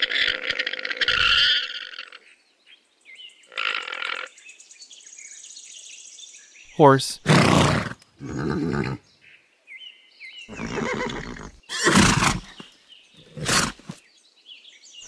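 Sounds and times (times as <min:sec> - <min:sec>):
horse calling: 0:00.0 - 0:02.2, 0:07.1 - 0:09.0, 0:10.5 - 0:14.0.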